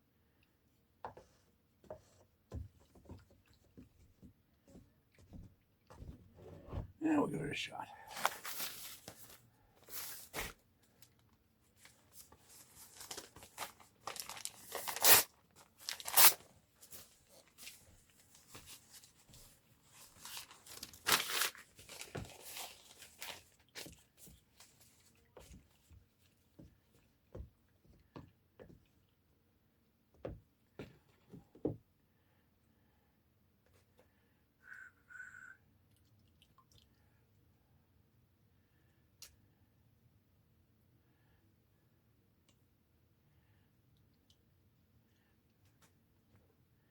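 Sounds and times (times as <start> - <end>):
paper rustling: 8.1 - 10.6, 11.8 - 25.6
newspaper tearing by hand: 12.8 - 16.4, 20.2 - 23.4.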